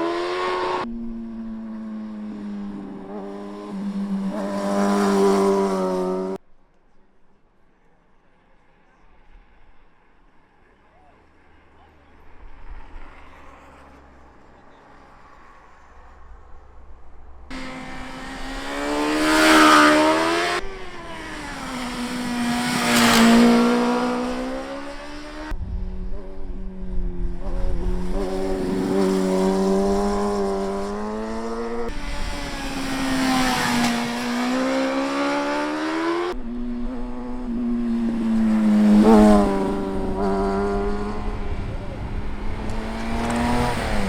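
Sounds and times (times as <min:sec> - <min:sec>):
motorcycle engines revving: 0:00.0 - 0:06.4, 0:11.8 - 0:44.0.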